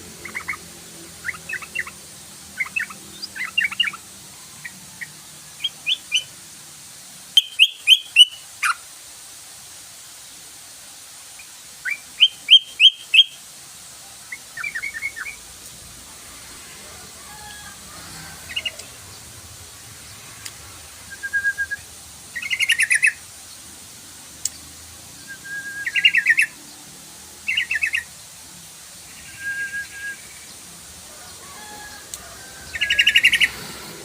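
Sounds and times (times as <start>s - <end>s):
bird chirping calls: 0.2s - 6.3s, 7.4s - 8.8s, 11.4s - 13.4s, 14.3s - 15.4s, 21.1s - 23.2s, 25.2s - 26.6s, 27.5s - 28.1s, 32.6s - 33.9s.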